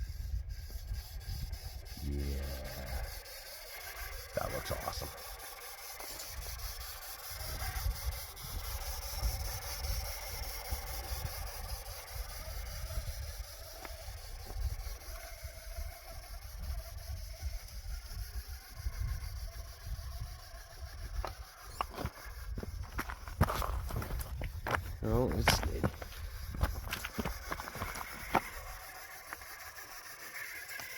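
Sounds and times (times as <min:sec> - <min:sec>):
toy car motor whine: 0:00.0 - 0:30.9
wind buffeting microphone: 0:06.3 - 0:28.8.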